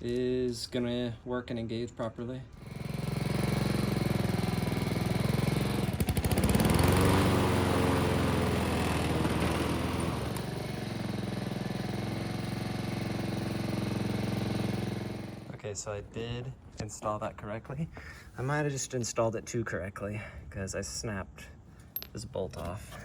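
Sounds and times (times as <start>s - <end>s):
lawn mower engine running: 2.6s - 15.6s.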